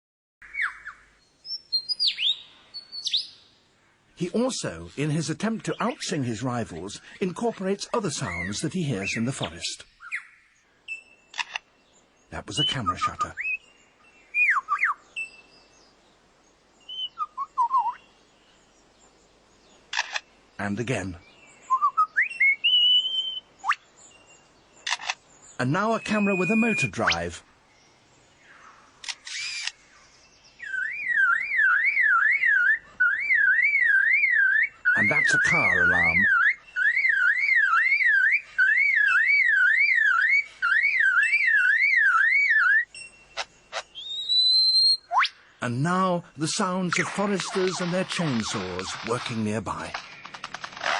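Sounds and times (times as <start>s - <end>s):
lyrebird singing whistled notes: 0.4s - 3.4s, 8.2s - 11.4s, 12.4s - 15.8s, 16.8s - 18.1s, 21.2s - 24.4s, 25.5s - 27.3s, 30.5s - 45.4s, 46.6s - 50.4s
sharp clicks: 11.3s - 11.7s, 19.9s - 20.3s, 24.8s - 25.2s, 29.0s - 29.8s, 46.9s - 50.9s.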